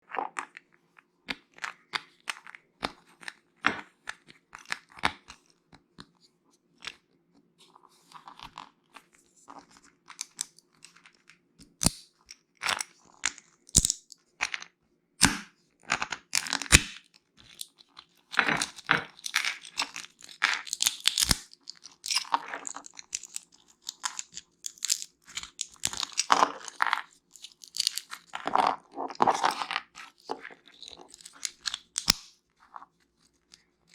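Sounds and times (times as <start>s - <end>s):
crunching and chewing nuts: 16.3s - 33.9s.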